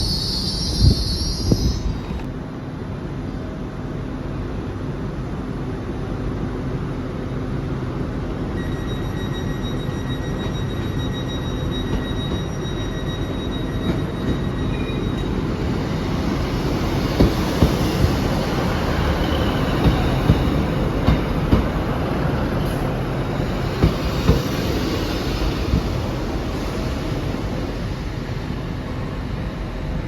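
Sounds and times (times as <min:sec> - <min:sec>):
high wheel squeal: 0:00.0 - 0:02.2
train rumble: 0:00.0 - 0:08.7, 0:09.5 - 0:30.0
wheels clacking over rail joints: 0:17.1 - 0:26.4.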